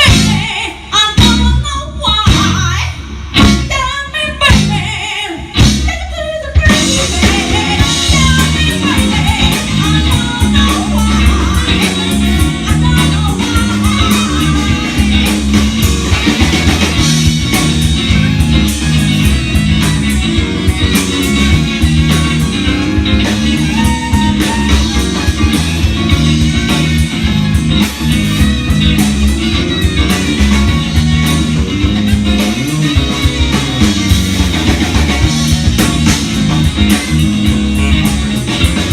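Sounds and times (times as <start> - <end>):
rock band playing: 0.0 - 38.9
person singing: 3.7 - 15.7, 23.0 - 25.7
drum beat: 6.7 - 38.9.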